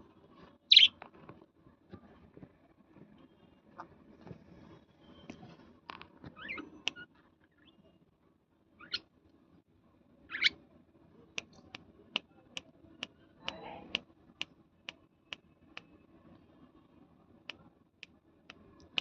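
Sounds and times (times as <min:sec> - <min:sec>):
parrot chirps: 0:00.7 - 0:01.0, 0:06.4 - 0:07.7, 0:08.8 - 0:09.1, 0:10.3 - 0:10.6.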